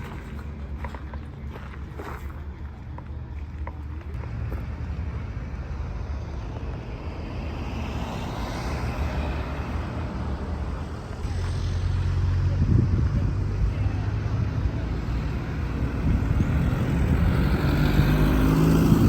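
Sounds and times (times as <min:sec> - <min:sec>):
vehicle passing by: 0:04.0 - 0:19.0
steady low rumble: 0:09.5 - 0:17.4.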